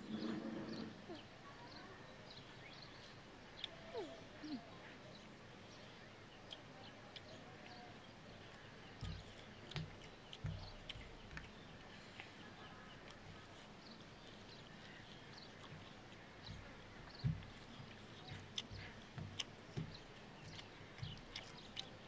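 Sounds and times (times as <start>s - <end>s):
mouth clicks and chewing: 3.6s - 4.6s, 6.3s - 22.0s
soft low thumps: 9.0s - 11.9s, 15.6s - 21.9s.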